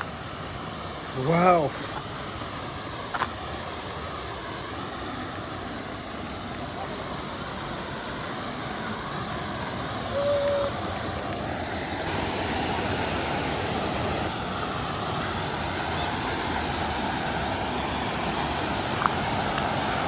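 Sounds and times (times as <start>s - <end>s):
waterfall rushing: 0.0s - 20.0s
brief single tone: 10.1s - 10.8s.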